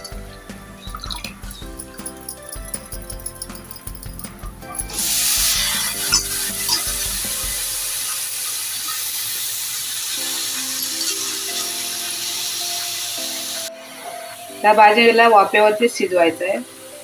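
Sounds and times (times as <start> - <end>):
beans frying in hot oil: 4.8 - 17.0.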